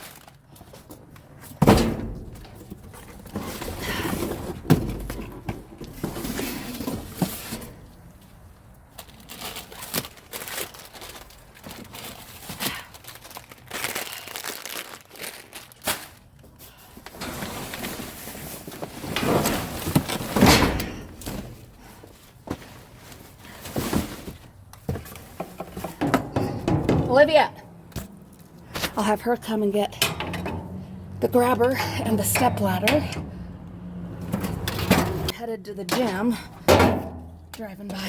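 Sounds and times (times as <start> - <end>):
plastic bags crinkling: 0.0 - 0.6, 8.8 - 16.6
knocks of items in metal dumpster: 1.6 - 7.7, 17.2 - 21.7, 23.6 - 27.4, 30.0 - 30.9, 36.0 - 37.5.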